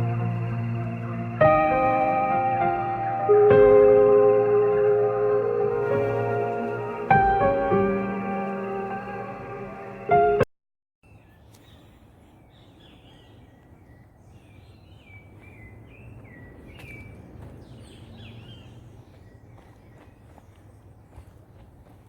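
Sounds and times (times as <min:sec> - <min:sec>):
loud music: 0:00.0 - 0:10.4
low outdoor rumble: 0:00.0 - 0:10.4
songbirds chirping: 0:00.0 - 0:10.4, 0:11.0 - 0:21.9.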